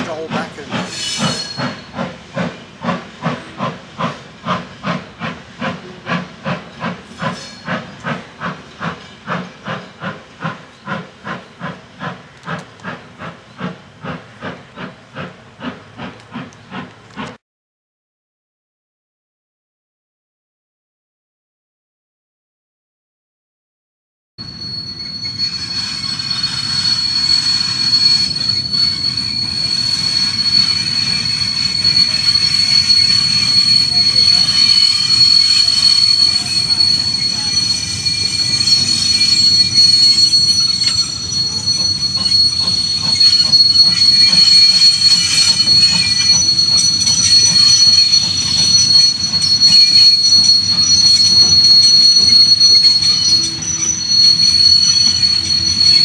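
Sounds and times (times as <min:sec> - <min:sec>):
low train rumble: 0:00.0 - 0:17.4, 0:24.4 - 0:56.0
train wheels squealing on rails: 0:00.0 - 0:17.4, 0:24.4 - 0:56.0
train wheel clicks: 0:00.2 - 0:17.4, 0:38.8 - 0:55.9.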